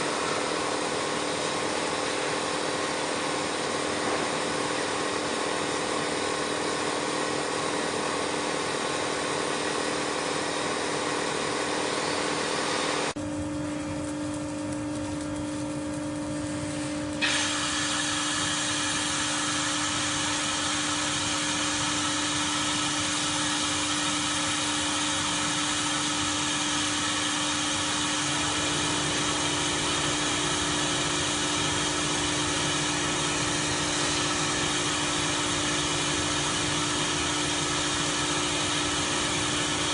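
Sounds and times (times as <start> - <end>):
welding machine hum: 0.0 - 39.9
high hiss: 17.2 - 24.0.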